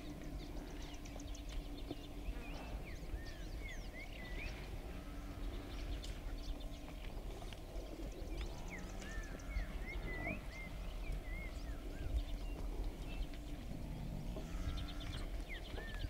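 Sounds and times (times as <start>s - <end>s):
low rumble: 0.0s - 16.0s
faint ticks: 5.8s - 16.0s.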